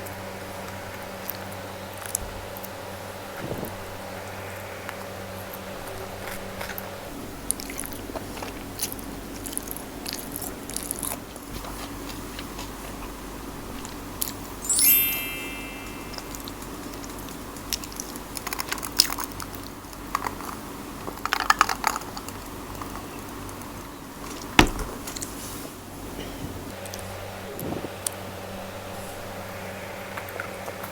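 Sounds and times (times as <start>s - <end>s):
high squeak dropping in pitch: 14.6s - 16.5s.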